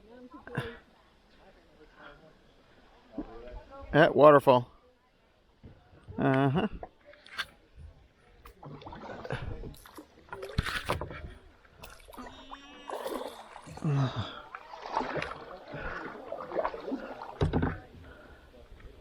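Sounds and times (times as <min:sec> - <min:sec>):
paddle splashing in water: 0:08.5 - 0:19.0
paddle knocking against kayak: 0:14.8 - 0:18.1.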